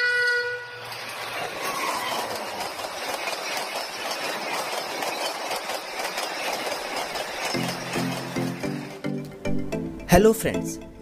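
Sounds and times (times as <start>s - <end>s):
train horn: 0.0s - 0.9s
train rushing past: 0.0s - 9.7s
wheel clicks on rails: 0.8s - 9.4s.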